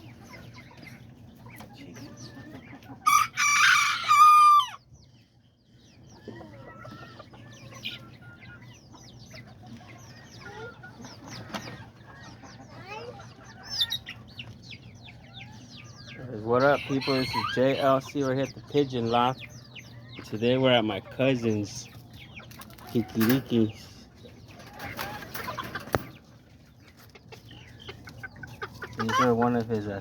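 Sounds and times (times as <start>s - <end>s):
chickens clucking and chirping: 0.0s - 30.0s
rooster crowing: 3.1s - 4.8s.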